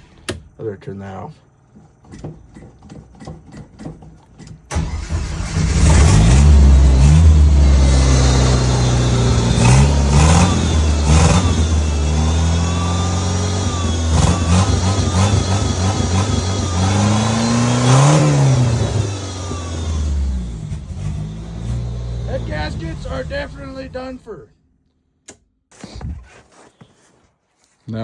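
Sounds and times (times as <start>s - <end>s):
vehicle engine starting and revving: 4.7s - 24.4s.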